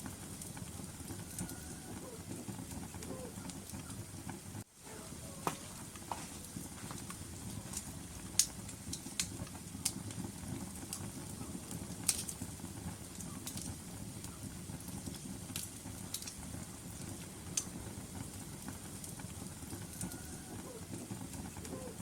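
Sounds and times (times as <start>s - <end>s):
low rumble of flames: 0.0s - 22.0s
logs popping and snapping: 5.4s - 10.0s.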